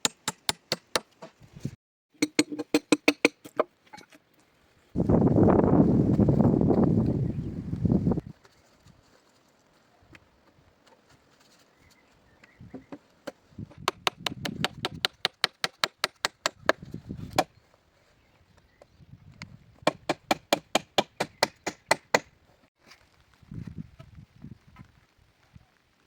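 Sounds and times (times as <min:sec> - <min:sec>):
hand tool striking wood: 0:00.0 - 0:01.4, 0:02.2 - 0:03.7, 0:12.8 - 0:17.5, 0:19.8 - 0:22.3.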